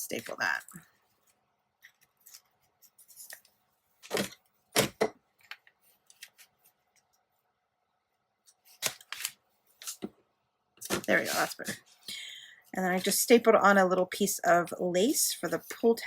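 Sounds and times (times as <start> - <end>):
paper rustling: 10.8 - 11.8.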